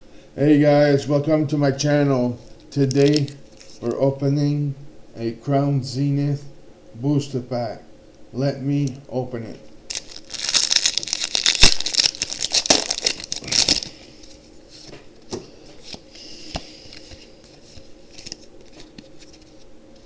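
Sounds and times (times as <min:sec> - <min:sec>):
foil wrapper crinkling and tearing: 0:02.4 - 0:03.8, 0:09.9 - 0:14.4.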